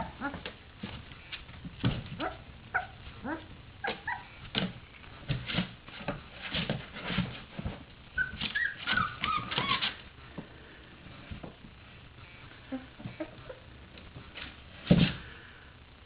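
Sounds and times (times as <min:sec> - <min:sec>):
high puppy squeals: 0:02.2 - 0:04.4, 0:08.2 - 0:10.0
puppies whimpering and yipping: 0:02.2 - 0:04.4, 0:08.2 - 0:10.0.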